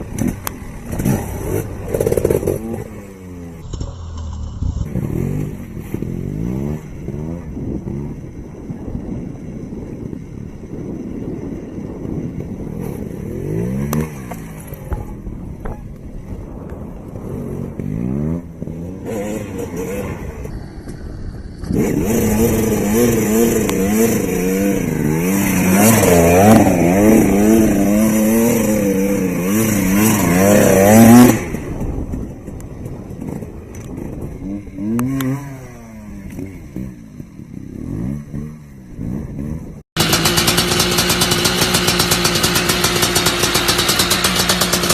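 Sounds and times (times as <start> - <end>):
motocross bike engines revving: 17.2 - 32.0, 33.2 - 44.9.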